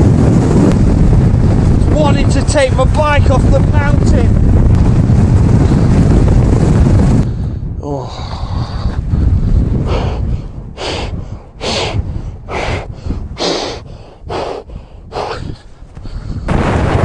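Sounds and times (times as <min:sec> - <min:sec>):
wind noise on microphone: 0:00.0 - 0:17.0
person breathing hard: 0:07.2 - 0:16.6.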